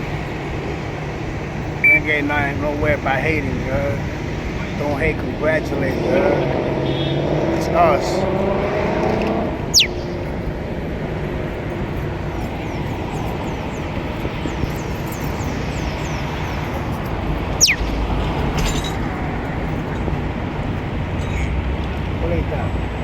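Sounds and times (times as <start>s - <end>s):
city traffic hum: 0.0s - 23.0s
parrot whistles: 9.7s - 10.1s, 17.6s - 17.8s.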